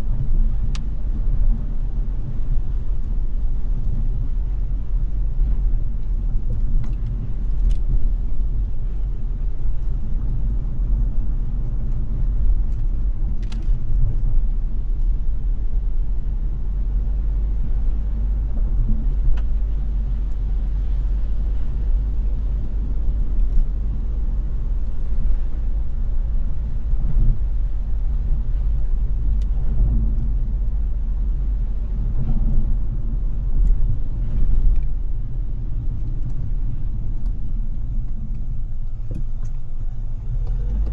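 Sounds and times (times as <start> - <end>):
hiss of tyres and rain: 0.0 - 40.9
road and engine rumble: 0.0 - 40.9
faint ticks: 33.6 - 35.0, 35.8 - 40.9.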